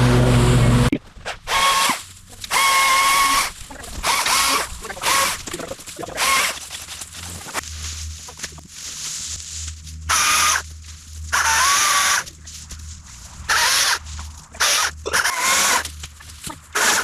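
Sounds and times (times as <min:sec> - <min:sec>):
small power tool motor whine: 0:01.5 - 0:07.6, 0:10.1 - 0:12.4, 0:13.2 - 0:17.0.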